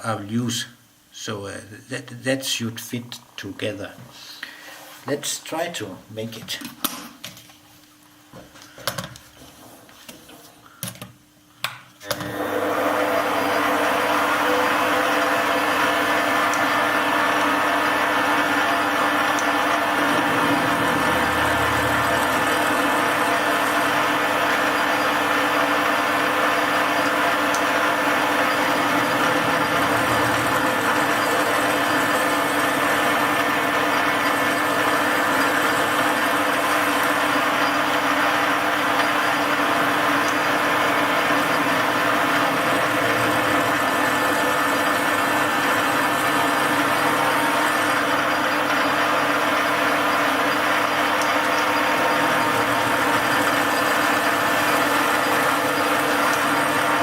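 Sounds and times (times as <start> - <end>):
metal lathe motor hum: 12.1 - 57.0.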